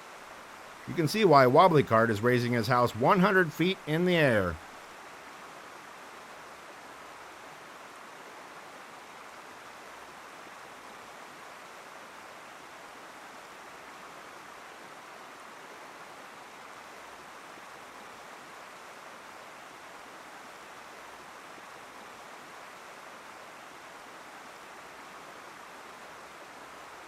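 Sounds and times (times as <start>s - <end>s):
floodwater rushing: 0.7s - 4.6s.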